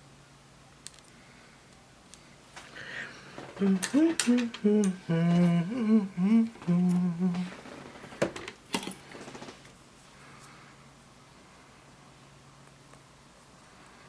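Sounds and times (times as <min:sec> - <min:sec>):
person humming: 0:03.4 - 0:08.1.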